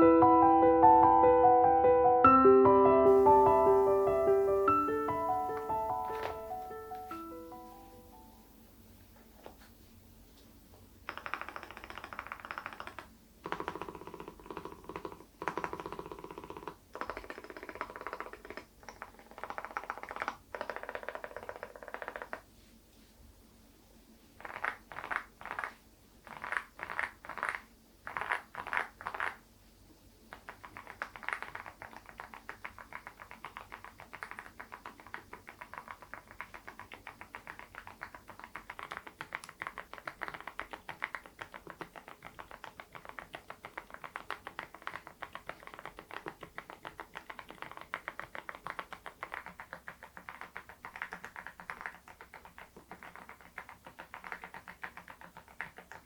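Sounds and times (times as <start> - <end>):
mechanical keyboard typing: 11.1 - 22.4, 30.4 - 56.0.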